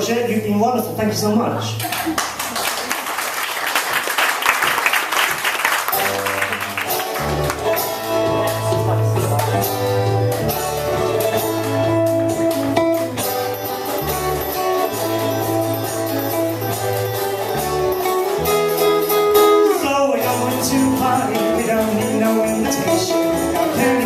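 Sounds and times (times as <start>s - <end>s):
guitar: 0.0s - 2.8s, 5.7s - 24.0s
live band playing: 5.2s - 24.0s
bass notes: 5.9s - 24.0s.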